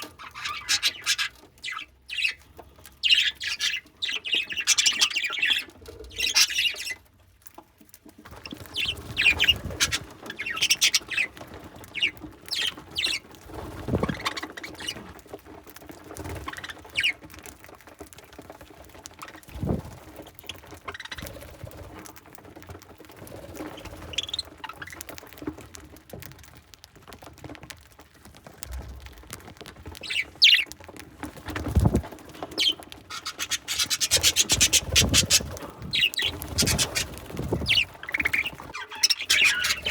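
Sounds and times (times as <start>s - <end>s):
budgerigars chirping and squawking: 0.0s - 7.1s, 8.4s - 15.1s, 16.2s - 17.2s, 20.5s - 21.5s, 23.6s - 25.1s, 30.0s - 30.8s, 31.5s - 39.9s
beaks pecking at seed: 0.0s - 39.9s.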